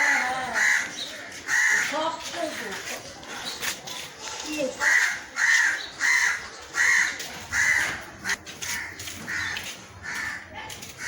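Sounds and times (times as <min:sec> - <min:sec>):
crow cawing: 0:00.0 - 0:02.0, 0:04.8 - 0:08.0, 0:08.7 - 0:10.5.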